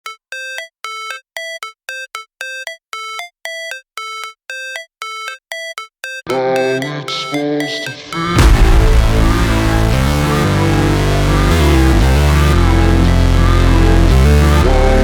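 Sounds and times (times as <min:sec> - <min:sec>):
short synth bleeps: 0:00.1 - 0:09.6
electronic track with bass: 0:06.4 - 0:15.0.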